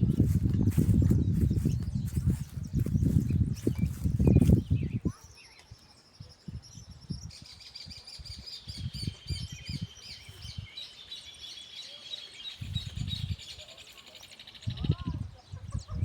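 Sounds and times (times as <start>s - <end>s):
low rumbling thumps: 0.0s - 4.9s
birds singing and chirping: 0.0s - 16.0s.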